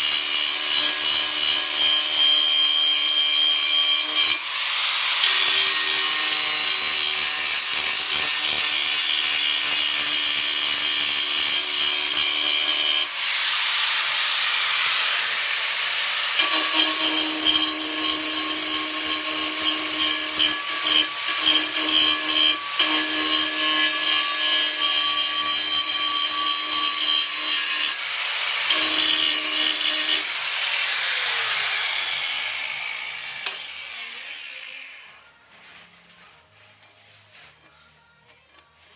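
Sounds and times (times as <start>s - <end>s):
power tool cutting steel: 0.0s - 35.2s.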